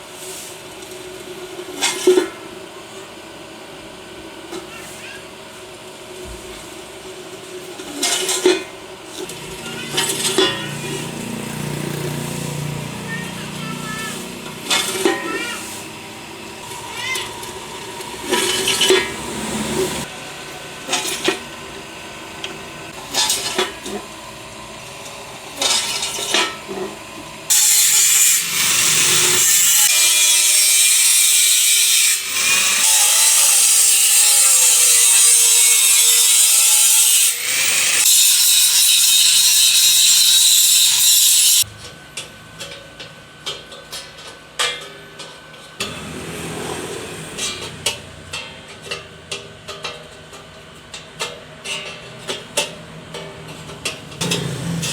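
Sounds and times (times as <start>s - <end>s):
power tool hissing: 15.7s - 20.1s, 27.5s - 38.5s.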